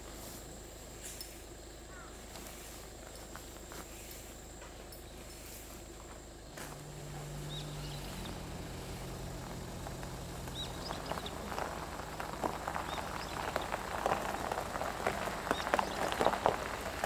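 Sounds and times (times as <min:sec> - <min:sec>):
low steady hum: 0:00.0 - 0:17.0
small bird chirping: 0:06.5 - 0:09.1, 0:10.4 - 0:11.5
raindrops pattering: 0:08.4 - 0:17.0.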